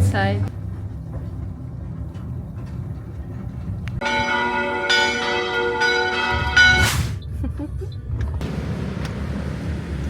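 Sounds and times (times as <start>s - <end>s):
low steady rumble: 0.0s - 9.1s
church bells ringing: 4.0s - 6.9s.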